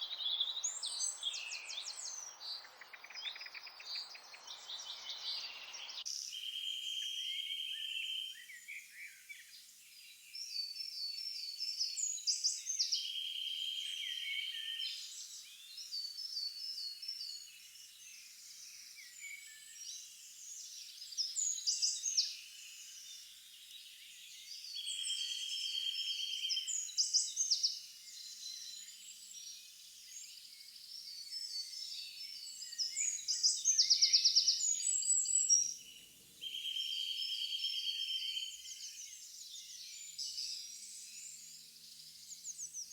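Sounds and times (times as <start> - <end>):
birds chirping: 0.0 - 6.1.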